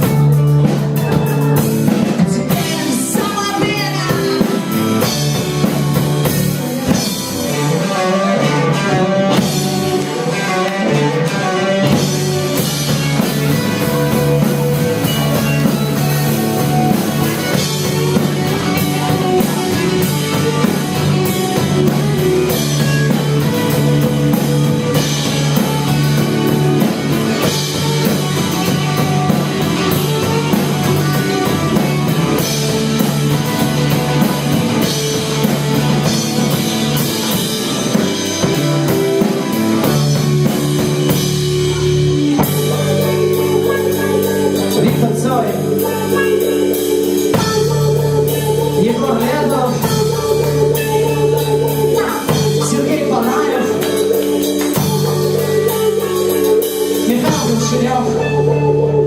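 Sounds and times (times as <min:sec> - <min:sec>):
drum kit beat: 0:00.0 - 0:59.0
guitar: 0:00.0 - 0:59.0.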